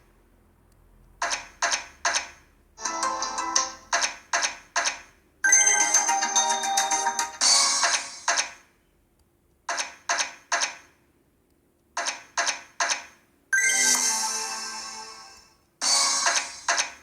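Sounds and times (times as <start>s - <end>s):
slot machine electronic chimes: 2.8s - 3.9s, 5.5s - 8.3s, 13.6s - 16.7s.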